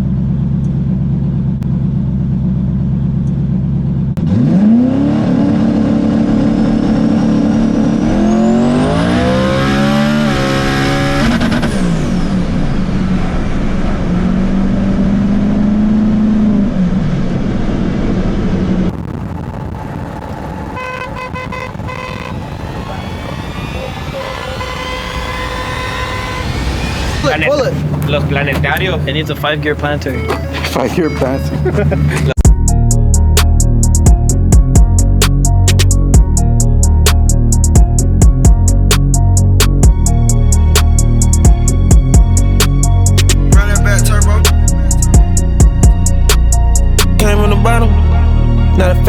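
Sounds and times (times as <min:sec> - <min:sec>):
truck engine idling and revving: 0:00.0 - 0:49.0.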